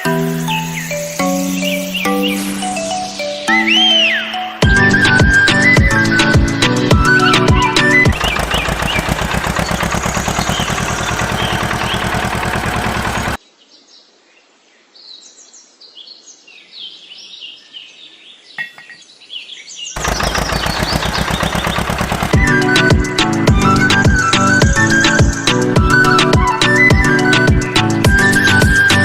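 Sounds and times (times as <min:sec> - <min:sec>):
birds chirping: 0:00.0 - 0:13.4, 0:15.2 - 0:29.0
fast mechanical chugging: 0:04.6 - 0:13.4, 0:20.0 - 0:28.8.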